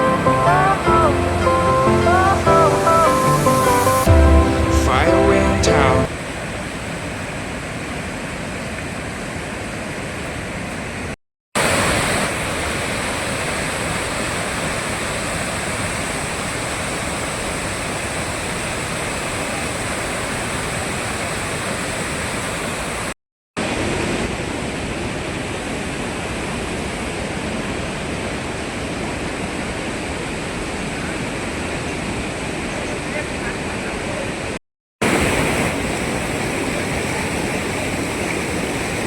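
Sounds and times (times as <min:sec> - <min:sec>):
waterfall rushing: 0:00.0 - 0:06.5, 0:11.6 - 0:24.2.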